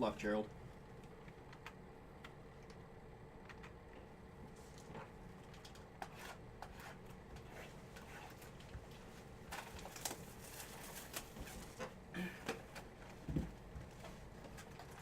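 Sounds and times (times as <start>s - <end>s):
plastic wrapping rustling: 8.3s - 11.9s.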